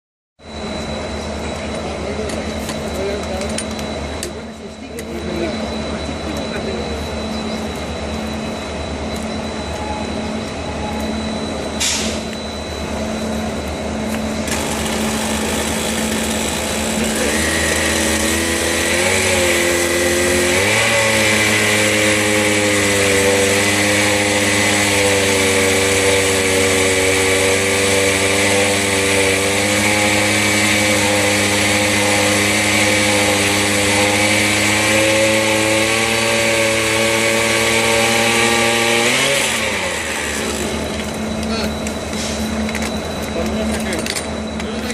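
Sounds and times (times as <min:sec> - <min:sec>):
drill boring through steel: 0:00.5 - 0:44.9
small gasoline engine running: 0:14.1 - 0:44.9.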